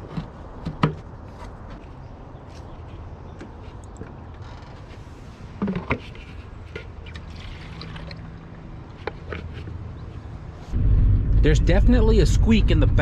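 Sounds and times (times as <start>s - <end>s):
suspension squeaks and creaks: 2.8s - 7.8s
car engine and road hum: 8.3s - 13.0s.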